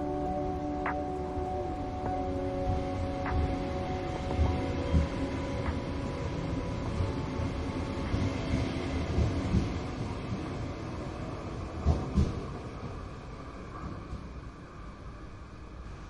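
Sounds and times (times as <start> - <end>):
faint held music notes: 0.0 - 10.7
train rumbling on rails: 0.0 - 16.0.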